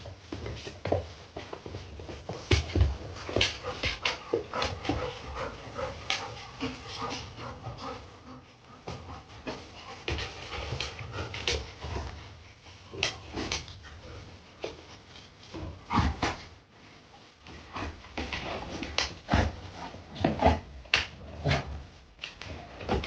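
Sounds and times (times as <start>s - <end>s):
dog panting: 1.4s - 16.3s.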